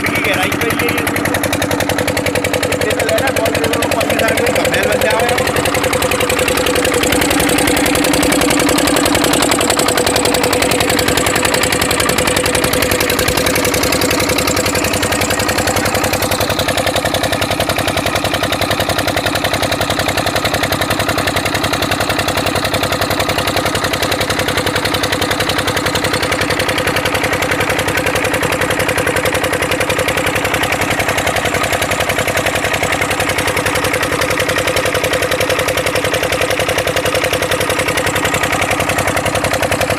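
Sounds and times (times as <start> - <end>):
water pump engine running: 0.0 - 39.9.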